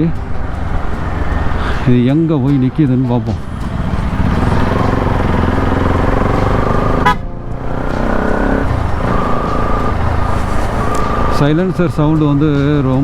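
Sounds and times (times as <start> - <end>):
motorcycle engine revving: 0.2 - 2.1, 3.2 - 13.0
vehicle horn: 6.9 - 7.4.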